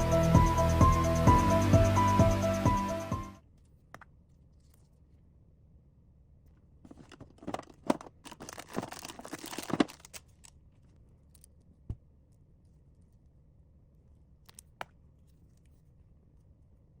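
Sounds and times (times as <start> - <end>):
packaging crinkling and tearing: 6.9 - 10.4.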